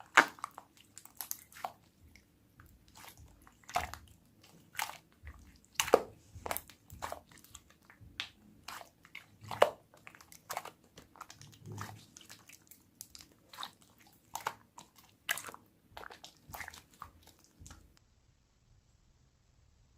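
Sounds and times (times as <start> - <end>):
slime clicking and popping: 0.0 - 1.7, 5.7 - 8.8.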